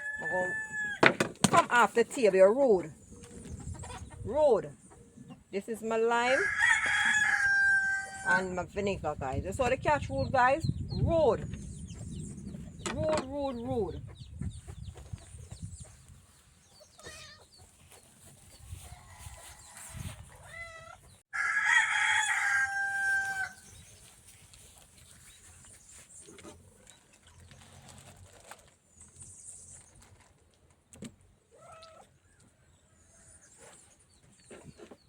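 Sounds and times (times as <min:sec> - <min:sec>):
rooster crowing: 0:06.4 - 0:08.3, 0:21.3 - 0:23.6.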